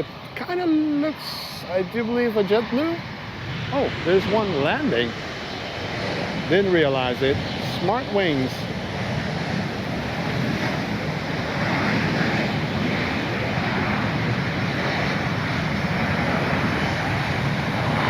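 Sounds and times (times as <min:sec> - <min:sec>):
jet airliner landing roar: 0:00.0 - 0:18.0
wind on microphone: 0:00.0 - 0:18.0.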